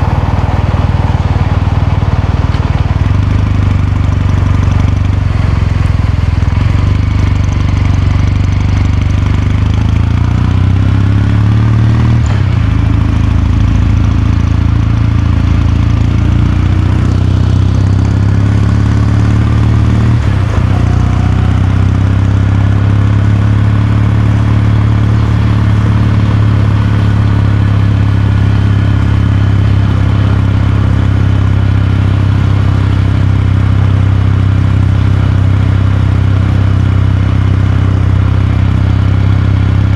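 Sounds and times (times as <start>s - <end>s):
gear shifts: 0.0s - 10.0s, 18.0s - 39.9s
motorcycle engine and exhaust running: 0.0s - 39.9s.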